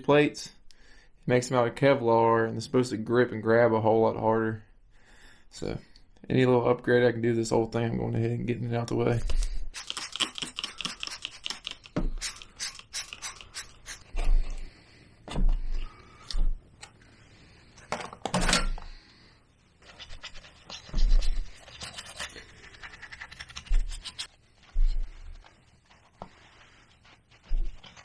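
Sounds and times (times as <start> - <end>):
scrubbing and scraping strokes: 9.7 - 14.2, 19.7 - 28.0.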